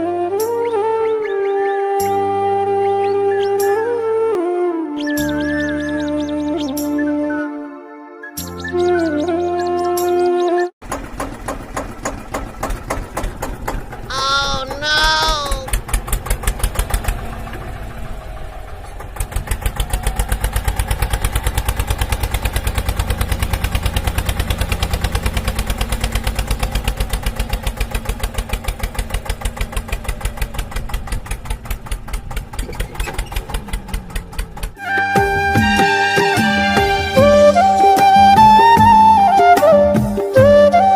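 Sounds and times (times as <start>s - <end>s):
tractor engine chugging: 10.8s - 35.0s.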